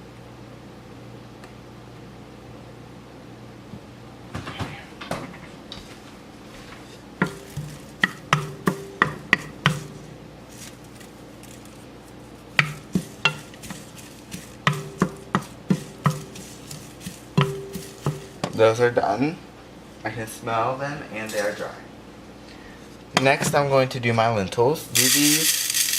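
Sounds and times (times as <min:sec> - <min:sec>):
utensil clacking against a pan: 0:07.2 - 0:11.6, 0:12.5 - 0:18.6.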